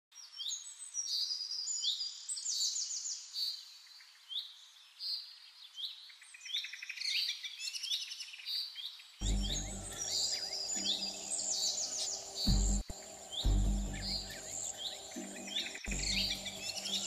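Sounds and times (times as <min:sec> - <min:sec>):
birds chirping: 0:09.2 - 0:17.0
buzzy bird trills: 0:09.2 - 0:17.0.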